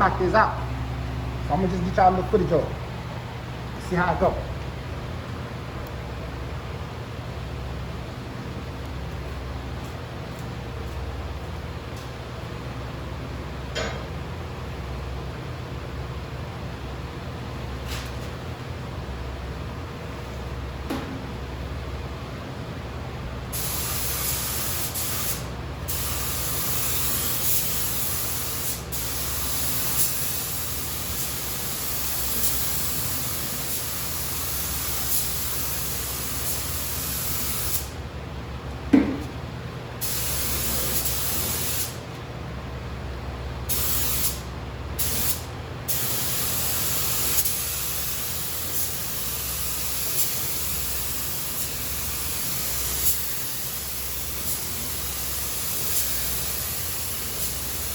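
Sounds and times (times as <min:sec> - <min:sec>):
shop fans humming: 0:00.0 - 0:57.9
paint spray gun hissing: 0:23.6 - 0:37.9, 0:40.0 - 0:42.0, 0:45.0 - 0:57.9
sharp knock: 0:38.9 - 0:39.3.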